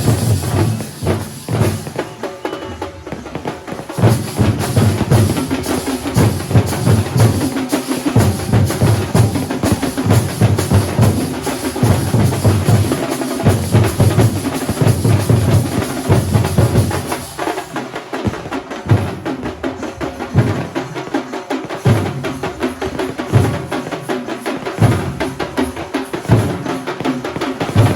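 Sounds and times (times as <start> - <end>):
deep drum beats: 0.0 - 21.0.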